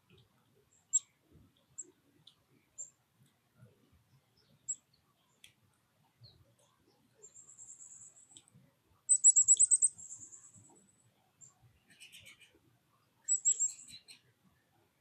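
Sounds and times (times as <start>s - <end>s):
songbird trilling: 9.1s - 10.5s, 13.2s - 14.1s
bird chips: 9.1s - 10.6s, 13.3s - 14.2s.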